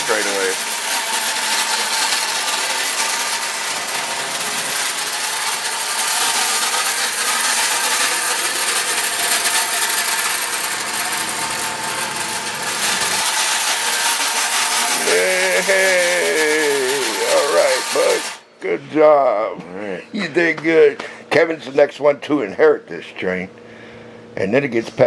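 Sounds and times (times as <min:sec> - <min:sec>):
toy train rattling on track: 0:00.0 - 0:18.4.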